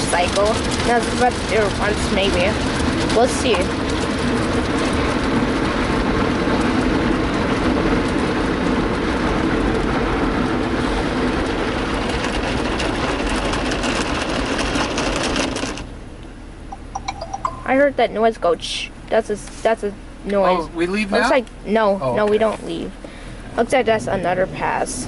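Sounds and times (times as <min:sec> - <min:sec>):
spinning car wash brushes: 0:00.0 - 0:15.9
water spray on car: 0:00.0 - 0:15.9.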